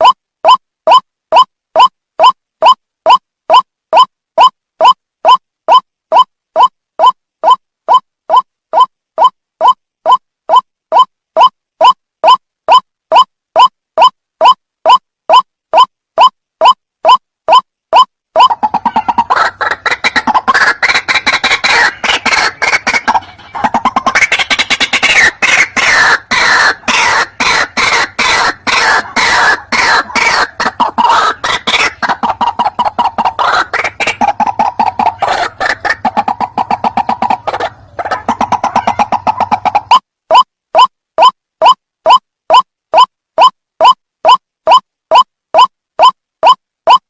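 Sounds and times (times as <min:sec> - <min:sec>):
bird harsh croaking calls: 0:18.4 - 0:40.0.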